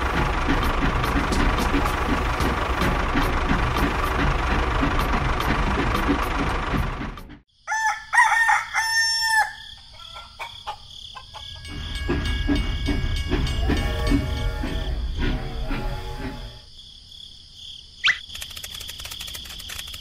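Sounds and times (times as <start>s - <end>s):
rumbling motor: 0.0s - 7.4s, 11.7s - 16.7s
rooster crowing: 7.6s - 11.7s.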